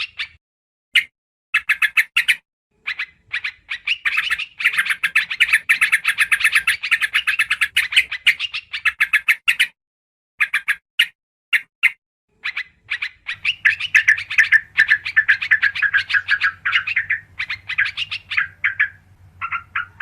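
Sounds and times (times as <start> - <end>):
bulbul chattering: 1.6 - 9.6, 12.4 - 20.0.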